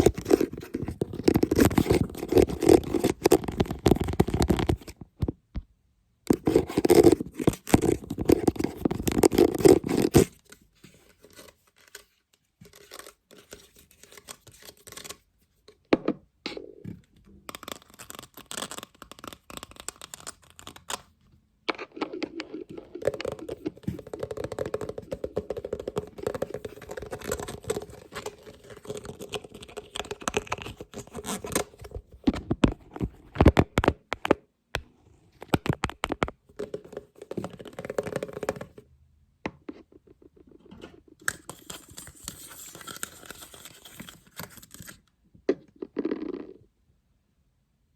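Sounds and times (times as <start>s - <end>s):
scratching on a lid: 21.8s - 31.7s.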